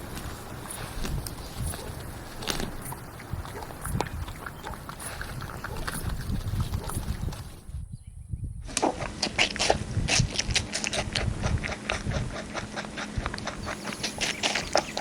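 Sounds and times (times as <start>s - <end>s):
livestock chewing grass: 0.0s - 7.8s, 9.2s - 15.0s
low outdoor rumble: 0.0s - 7.8s.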